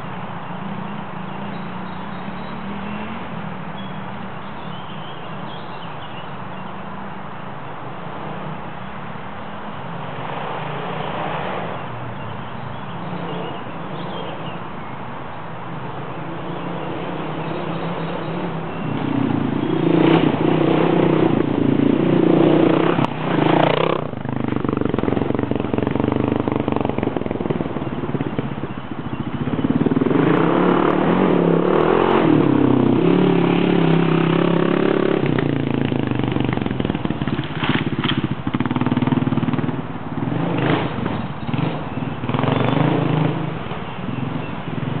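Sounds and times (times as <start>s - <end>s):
dirt bike engine revving: 16.5s - 45.0s.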